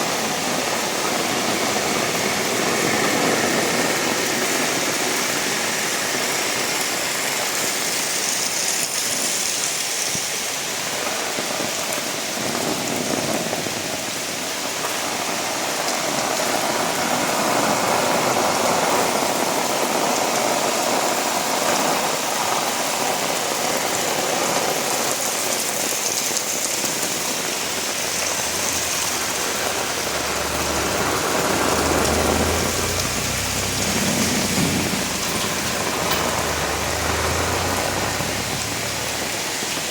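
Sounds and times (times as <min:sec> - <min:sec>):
heavy rain falling: 0:00.0 - 0:39.9
low rumble: 0:28.4 - 0:39.5.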